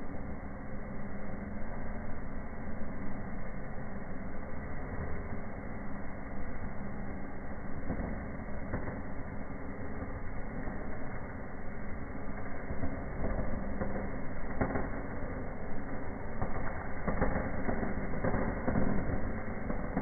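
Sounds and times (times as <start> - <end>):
firework crackles: 0.0 - 20.0
firework fizzing: 4.8 - 20.0.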